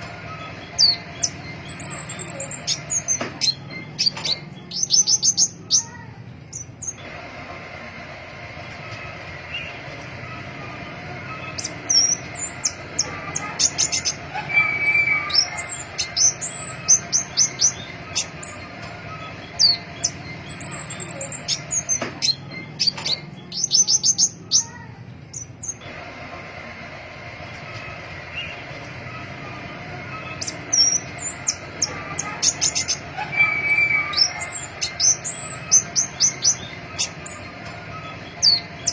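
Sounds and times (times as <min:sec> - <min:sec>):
bird singing high chirps: 0:11.4 - 0:25.8, 0:30.1 - 0:38.9.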